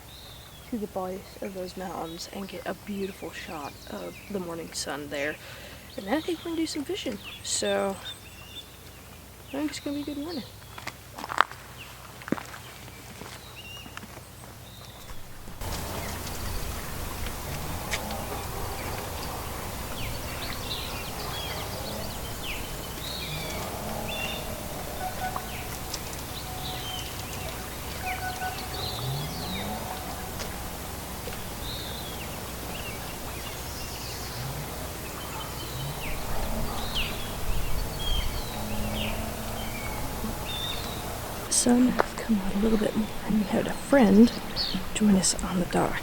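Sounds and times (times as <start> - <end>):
small birds chirping: 0.0 - 46.0
low outdoor rumble: 14.2 - 46.0.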